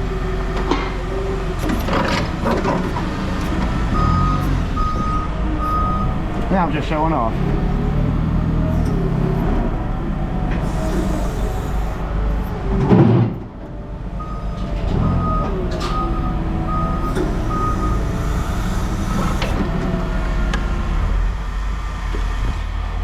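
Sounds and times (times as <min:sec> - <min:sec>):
heavy vehicle engine rumbling: 0:00.0 - 0:23.0
reversing alarm beeping: 0:03.5 - 0:06.2, 0:14.2 - 0:19.5.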